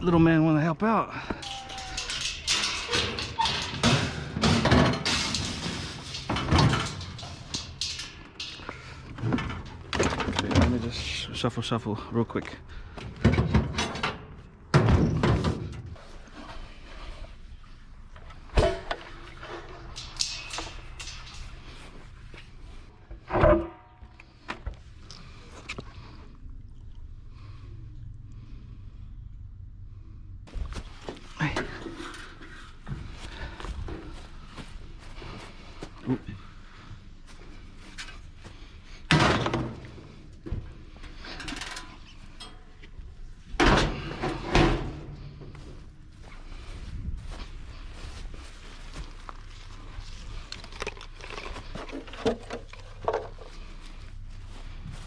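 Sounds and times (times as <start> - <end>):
bicycle frames clattering: 1.2 - 11.2, 18.1 - 24.1, 40.9 - 43.0
scrap metal knocking and clanking: 1.3 - 11.2, 12.9 - 17.3, 18.2 - 24.1, 37.5 - 45.8.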